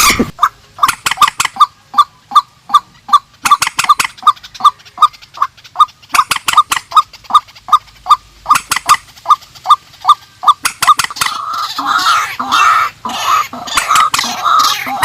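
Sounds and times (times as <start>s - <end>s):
waterbirds calling with hollow notes: 0.0s - 15.0s
sharp clicking bird notes: 0.8s - 1.7s, 3.4s - 5.5s, 6.1s - 7.1s, 8.5s - 9.4s, 10.4s - 11.8s.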